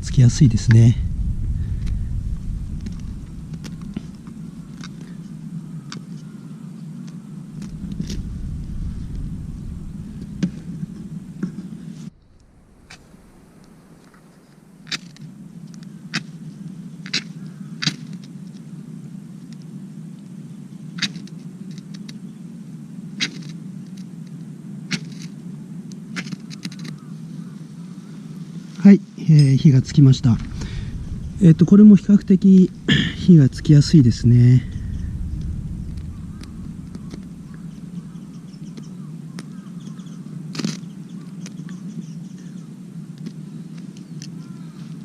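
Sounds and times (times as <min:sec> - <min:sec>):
campfire crackling and popping: 0:00.0 - 0:05.2, 0:07.5 - 0:11.6, 0:29.5 - 0:39.5.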